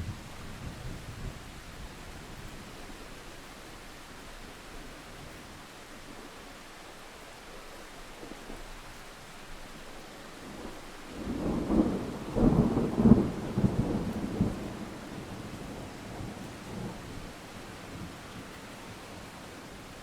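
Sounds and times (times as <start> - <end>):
steady rain falling: 0.0 - 20.0
thunder rolling: 11.2 - 18.2.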